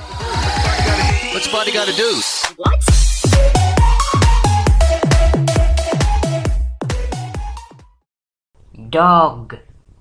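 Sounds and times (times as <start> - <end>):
heavy kick drum: 2.7 - 7.6
synth melody: 2.7 - 7.9.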